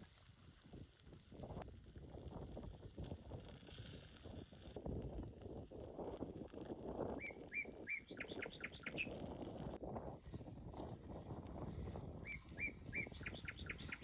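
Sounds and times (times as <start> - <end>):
low crackling rustle: 0.0 - 14.0
songbird chirping: 7.2 - 9.1, 12.2 - 14.0.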